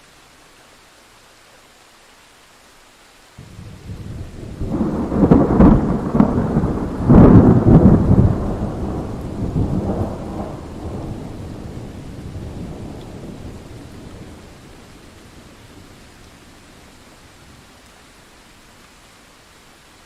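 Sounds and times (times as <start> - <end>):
steady rain: 0.0 - 20.0
thunder rolling: 3.4 - 14.8.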